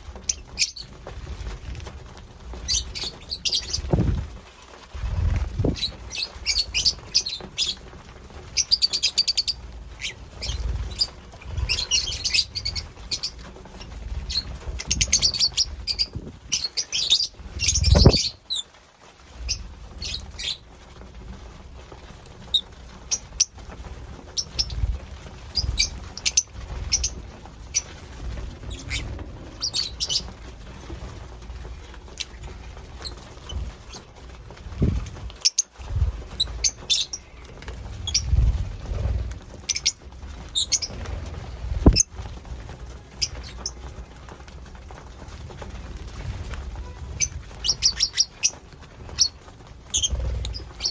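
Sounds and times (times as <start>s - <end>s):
rustling: 0.0s - 50.9s
lovebirds chirping: 8.6s - 13.4s, 14.3s - 18.6s, 25.6s - 30.4s, 47.2s - 50.9s.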